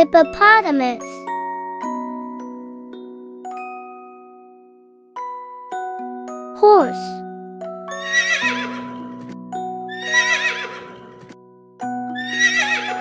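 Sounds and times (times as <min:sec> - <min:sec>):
gentle music with mallet percussion: 0:00.0 - 0:13.0
horse whinnying: 0:07.9 - 0:09.2, 0:09.9 - 0:11.3, 0:12.2 - 0:13.0.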